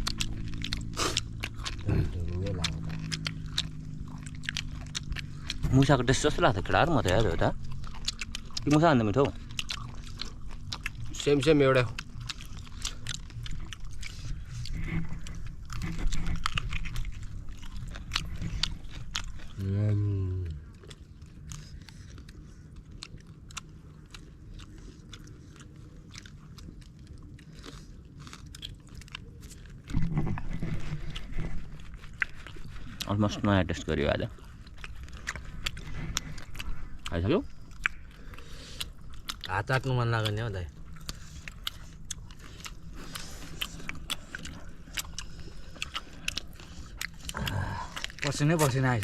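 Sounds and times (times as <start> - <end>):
low rumble: 0.0 - 22.0
chewing and crunching meat: 0.0 - 49.0.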